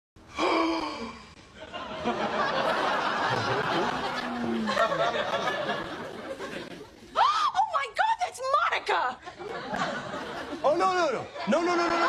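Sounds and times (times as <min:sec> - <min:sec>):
studio audience laughing: 0:01.6 - 0:07.1, 0:09.2 - 0:12.0.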